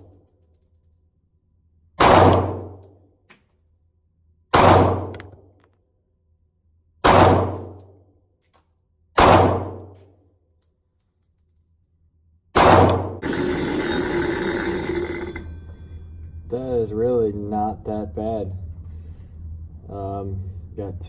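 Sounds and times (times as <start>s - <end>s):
pistol shots: 2.0s - 2.8s, 4.5s - 5.4s, 7.0s - 7.8s, 9.2s - 9.9s, 12.6s - 13.2s.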